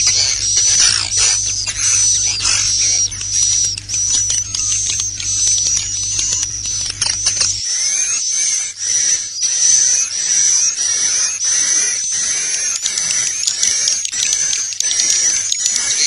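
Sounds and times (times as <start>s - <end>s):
low hum: 0.0s - 7.7s
swiftlets twittering: 0.0s - 7.7s.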